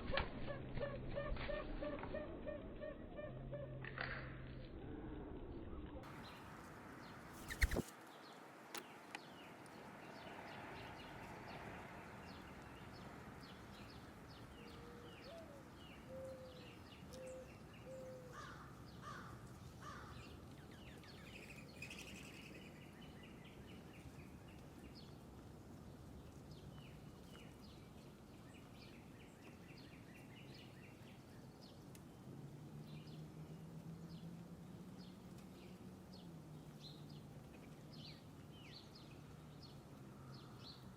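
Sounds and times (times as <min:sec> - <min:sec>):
outdoor background noise: 0:00.0 - 0:40.9
small birds chirping: 0:07.1 - 0:11.1.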